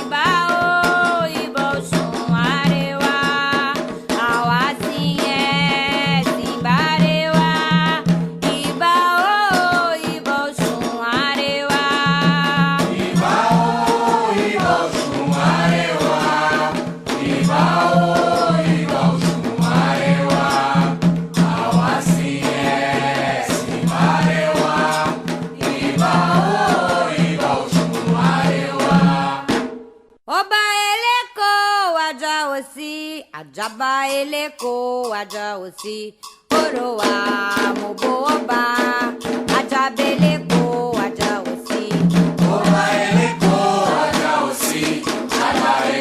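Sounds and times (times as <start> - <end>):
single voice singing: 0.0 - 29.6, 30.3 - 46.0
hand drums: 0.0 - 30.0, 33.5 - 46.0
group of voices chanting: 42.5 - 46.0.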